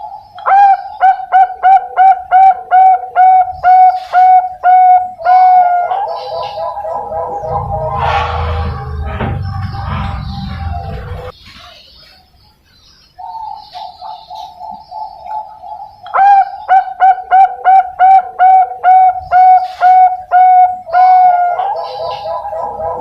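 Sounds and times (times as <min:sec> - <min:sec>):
dove cooing: 0:00.0 - 0:11.3, 0:13.2 - 0:23.0
soft rolling trill: 0:06.7 - 0:11.3.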